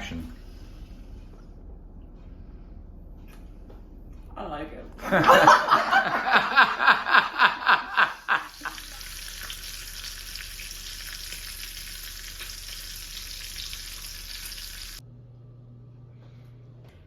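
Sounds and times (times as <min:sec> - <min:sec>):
faint low hum: 0:00.0 - 0:17.0
laughter: 0:05.0 - 0:08.9
steady hiss: 0:05.7 - 0:15.0.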